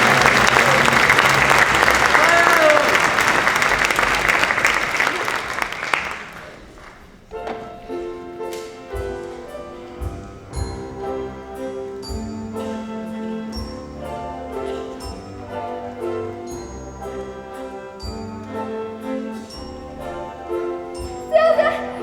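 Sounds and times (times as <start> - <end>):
orchestral music: 0.0 - 6.0, 7.3 - 22.0
audience applause: 0.0 - 7.3.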